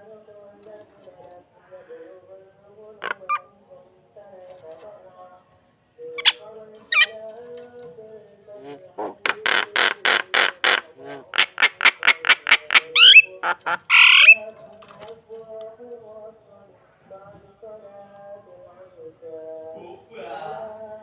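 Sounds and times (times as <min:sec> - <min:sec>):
starling calling: 0:03.0 - 0:03.6, 0:06.1 - 0:07.3, 0:08.6 - 0:14.6.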